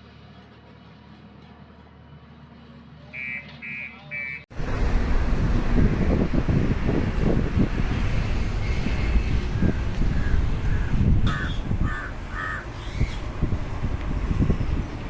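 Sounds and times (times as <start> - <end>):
low rumble: 4.5 - 12.4
bird calling: 9.0 - 13.3.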